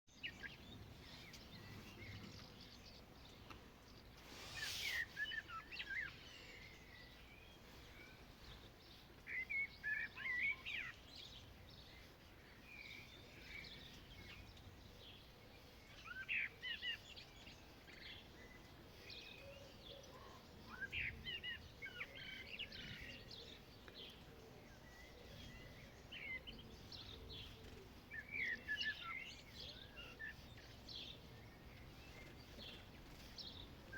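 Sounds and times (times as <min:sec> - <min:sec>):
songbirds chirping: 0:00.1 - 0:33.9
brief hiss: 0:04.2 - 0:05.4.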